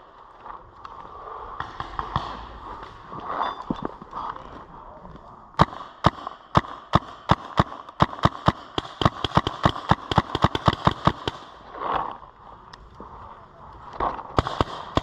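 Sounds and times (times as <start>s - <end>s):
paintball marker firing: 5.6s - 11.5s.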